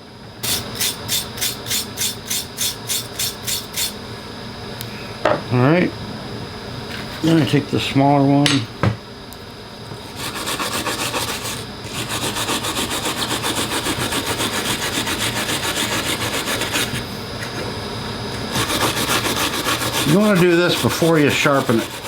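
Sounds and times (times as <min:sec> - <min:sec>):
rubbing strokes on metal blade: 0:10.2 - 0:17.0, 0:18.5 - 0:22.0.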